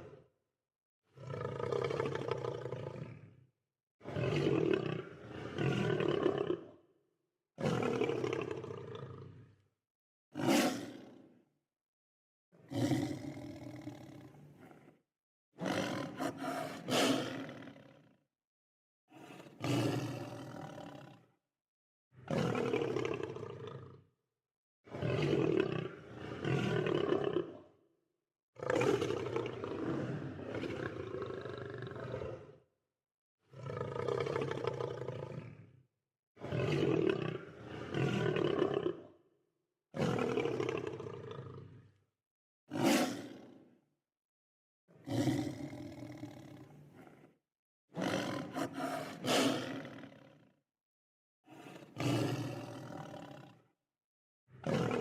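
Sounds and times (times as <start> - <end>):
lion roaring: 1.2 - 3.2, 33.5 - 35.6, 45.0 - 47.3, 48.0 - 50.4, 51.5 - 53.4.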